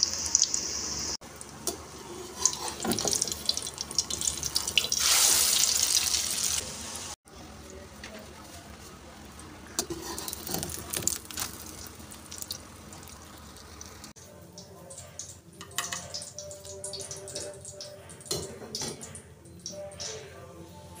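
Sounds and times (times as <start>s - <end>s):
crackles and drips: 0.0s - 6.6s, 9.8s - 20.2s
omelette sizzling in oil: 1.9s - 6.7s, 9.8s - 14.2s
spatula scraping pan: 2.0s - 3.1s, 9.8s - 10.8s.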